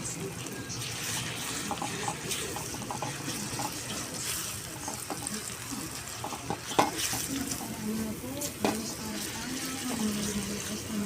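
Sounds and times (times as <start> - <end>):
tap water running into sink: 1.0 - 4.1.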